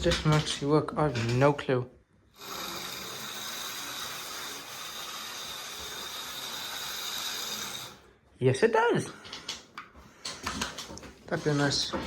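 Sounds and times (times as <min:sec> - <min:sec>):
small electric motor whirring: 0:02.4 - 0:08.1.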